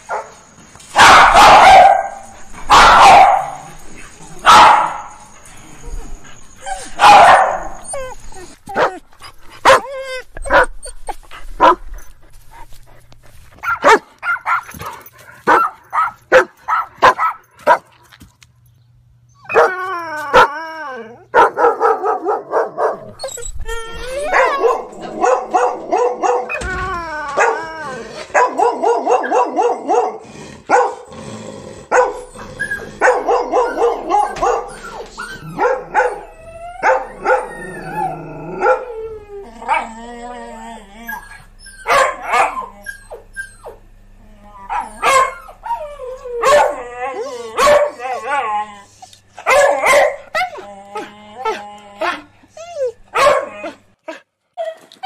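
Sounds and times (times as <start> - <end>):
dogs barking: 0.0 - 5.4, 6.8 - 8.1, 9.6 - 10.7, 11.6 - 11.8, 13.6 - 17.9, 21.3 - 23.2, 24.2 - 26.7, 27.4 - 31.1, 31.8 - 38.9, 41.8 - 43.2, 44.7 - 46.9, 47.5 - 48.3, 49.4 - 50.6, 53.1 - 53.8
dogs whining: 0.0 - 13.0, 19.2 - 21.4, 22.9 - 29.9, 31.9 - 53.8.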